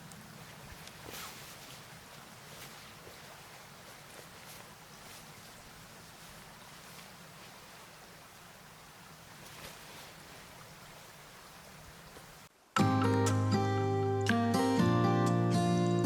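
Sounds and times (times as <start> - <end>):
soft rustles: 0.0 - 12.5
river flowing: 0.0 - 13.2
music: 12.8 - 16.0.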